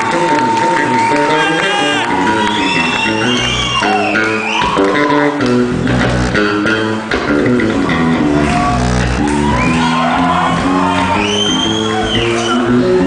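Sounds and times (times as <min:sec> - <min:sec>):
electric bass guitar solo: 0:00.0 - 0:13.0.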